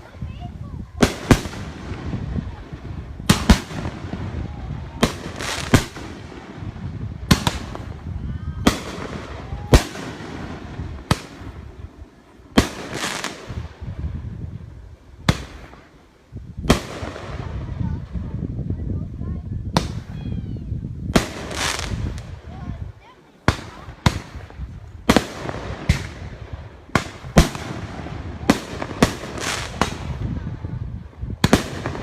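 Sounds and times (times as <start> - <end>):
fireworks bangs: 0.0 - 32.0.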